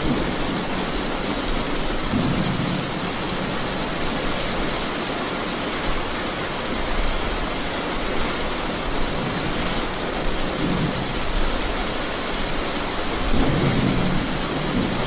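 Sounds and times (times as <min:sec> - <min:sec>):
low thunder rumble: 0:00.0 - 0:04.5, 0:13.2 - 0:15.0
steady rain hissing: 0:00.0 - 0:15.0.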